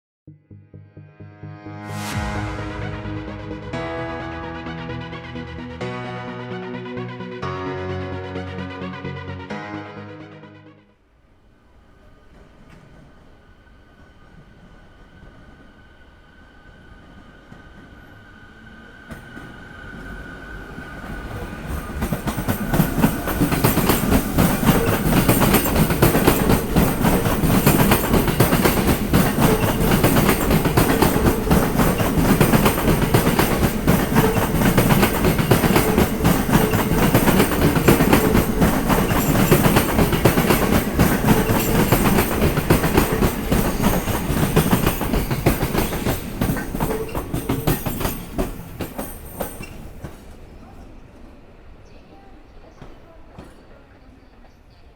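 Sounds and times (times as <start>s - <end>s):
train wheels clattering over rail joints: 21.0s - 50.4s.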